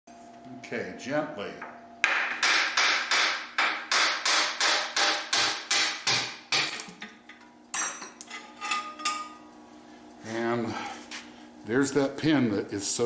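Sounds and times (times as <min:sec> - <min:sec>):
hammer knocking on metal: 0:02.1 - 0:06.7.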